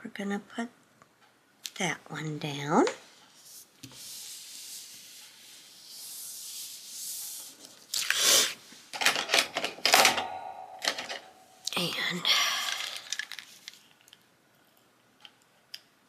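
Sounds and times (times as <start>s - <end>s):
paper being rubbed: 3.4s - 8.5s.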